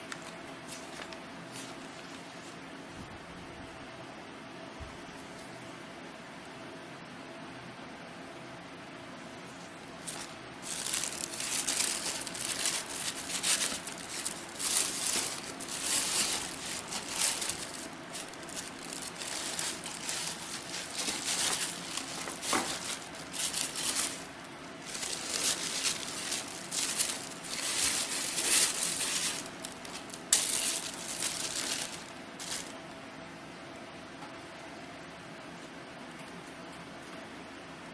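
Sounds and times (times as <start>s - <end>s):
packaging crinkling: 10.0s - 32.8s.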